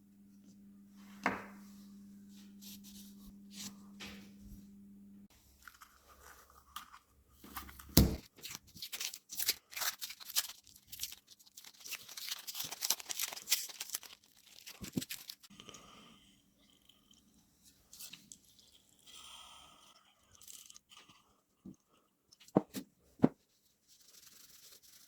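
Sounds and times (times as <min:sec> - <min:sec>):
crinkling and scraping handling noises: 0:01.0 - 0:04.6, 0:05.3 - 0:15.5.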